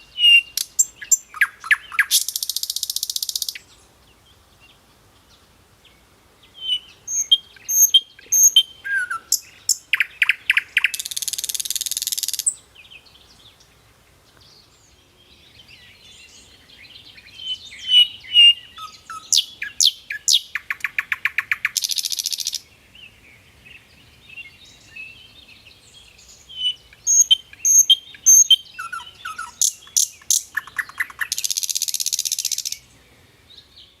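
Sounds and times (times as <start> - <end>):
songbird chirping and trilling: 0.0 - 34.0.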